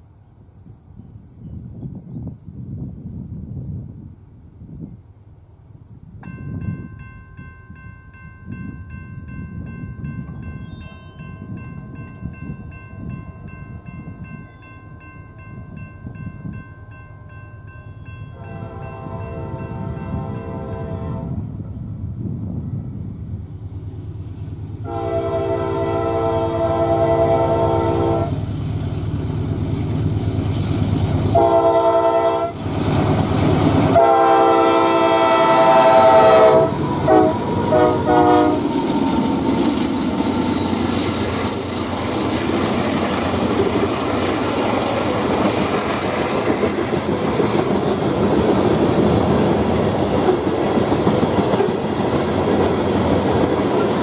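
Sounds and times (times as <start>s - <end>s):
passing train rumble: 6.1s - 54.0s
locomotive horn blasts: 18.4s - 21.5s, 24.8s - 28.4s, 31.3s - 32.6s, 33.9s - 38.8s
wheels clicking over rail joints: 38.6s - 54.0s.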